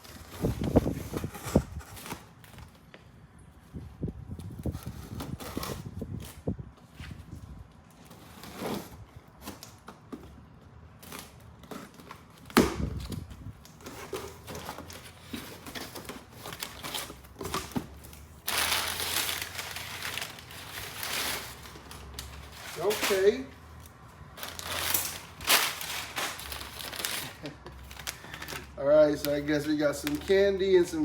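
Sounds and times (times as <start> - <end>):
packing material crinkling: 11.0 - 31.0.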